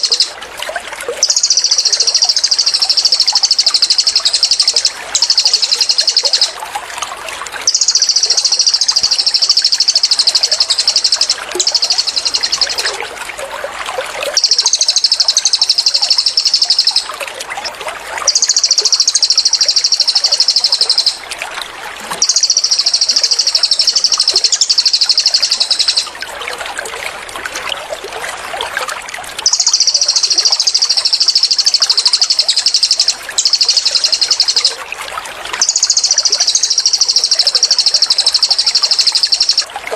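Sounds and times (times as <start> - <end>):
trickle of running water: 0.0 - 39.9
bird singing high trills: 1.2 - 6.6, 7.7 - 13.0, 14.4 - 17.2, 18.3 - 21.2, 22.2 - 26.2, 29.4 - 34.8, 35.6 - 39.7.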